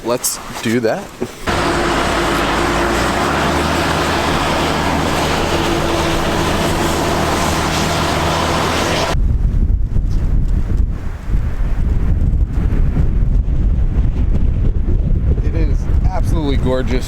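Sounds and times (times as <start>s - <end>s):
car road and engine noise: 1.4s - 9.2s
low hum: 1.5s - 10.0s
wind buffeting microphone: 1.5s - 17.0s.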